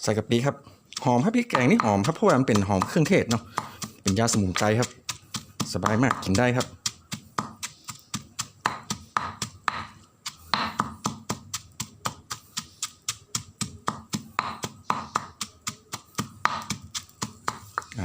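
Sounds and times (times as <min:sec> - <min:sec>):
pestle pounding in mortar: 0:01.0 - 0:18.0.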